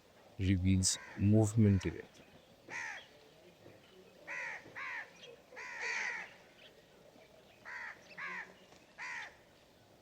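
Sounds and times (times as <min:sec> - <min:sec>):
bird calling: 0:00.8 - 0:03.2, 0:04.2 - 0:06.8, 0:07.6 - 0:09.4.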